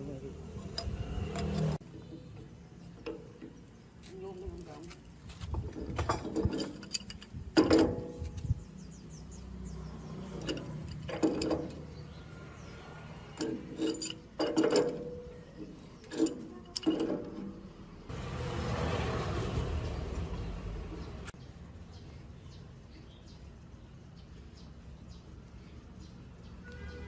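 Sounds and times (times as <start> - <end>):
metal parts clinking: 5.7 - 8.6, 10.3 - 12.0, 13.4 - 17.7.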